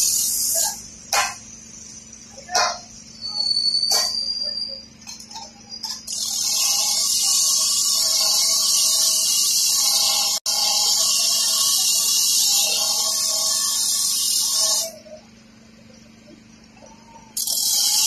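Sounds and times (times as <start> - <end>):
high hiss of rail cutting: 0.0 - 0.8, 6.1 - 15.0.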